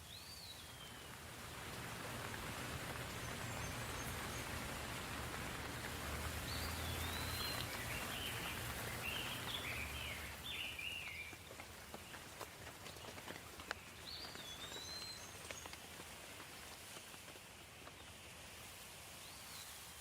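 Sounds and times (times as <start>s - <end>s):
steady soft rain: 0.0s - 20.0s
bird chirping: 6.4s - 11.4s, 13.7s - 15.8s.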